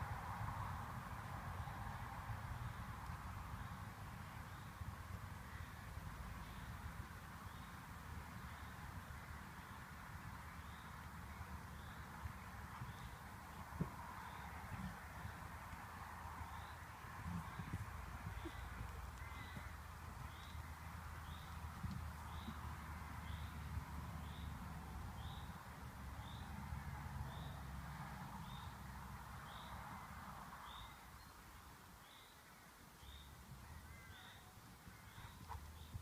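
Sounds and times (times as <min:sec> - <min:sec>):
wind rumble on microphone: 0:06.5 - 0:26.0.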